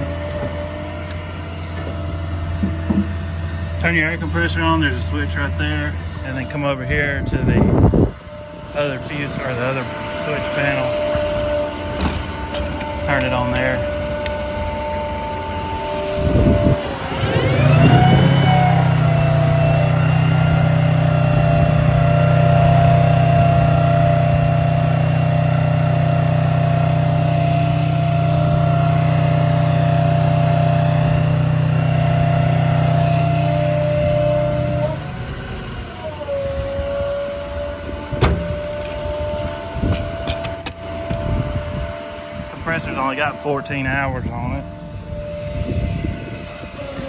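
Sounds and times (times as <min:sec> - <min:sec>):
air compressor humming: 0:00.0 - 0:35.1
compressor whine: 0:00.0 - 0:47.0.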